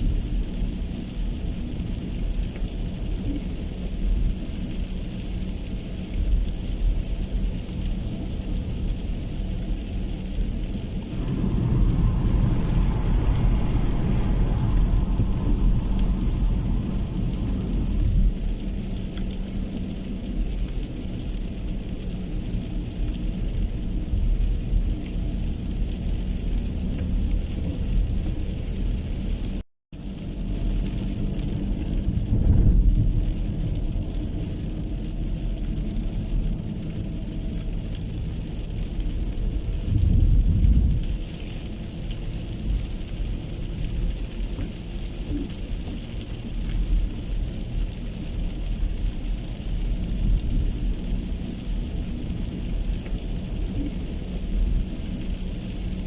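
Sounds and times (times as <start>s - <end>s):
low rumble: 0.0s - 56.0s
rain falling: 0.0s - 56.0s.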